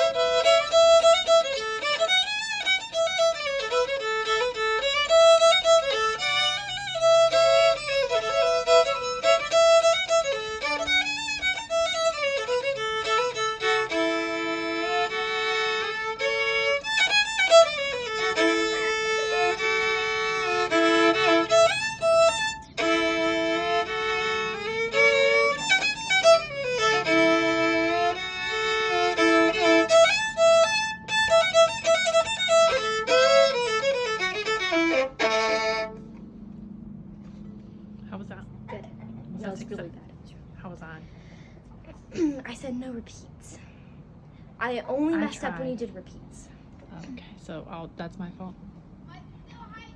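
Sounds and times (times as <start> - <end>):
solo violin melody: 0.0 - 36.2.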